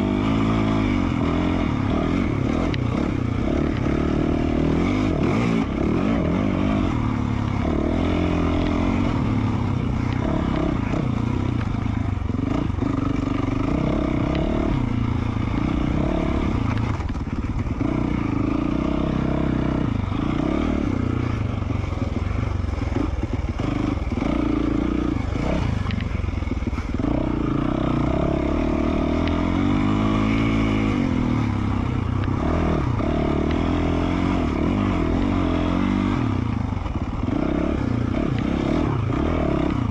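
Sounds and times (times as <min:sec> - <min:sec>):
motorcycle engine revving: 0:00.0 - 0:39.9
clatter: 0:15.5 - 0:17.8.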